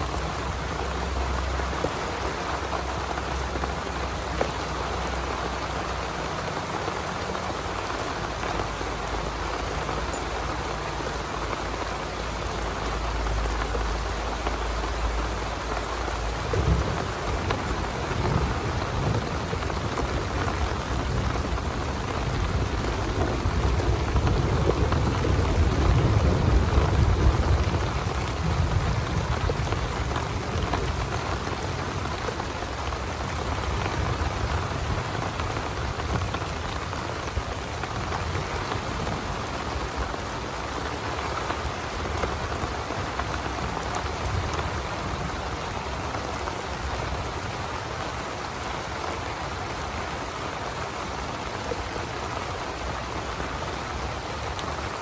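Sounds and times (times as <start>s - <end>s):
heavy rain: 0.0s - 55.0s
low rumble of thunder: 8.6s - 40.2s.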